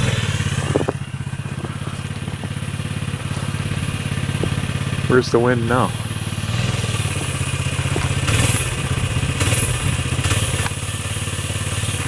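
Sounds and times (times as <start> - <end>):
engine running with fast pulse: 0.0 - 12.0.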